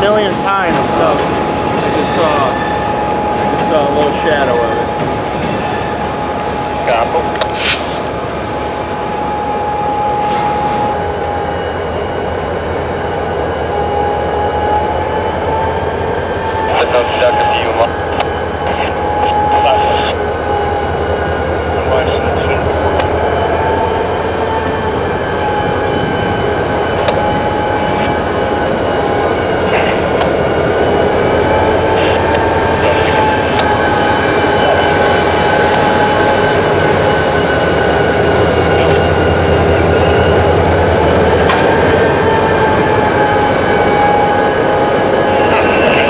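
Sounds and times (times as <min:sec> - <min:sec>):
freight cars rumbling: 0:00.0 - 0:05.6, 0:20.8 - 0:46.0
train wheels squealing: 0:00.0 - 0:46.0.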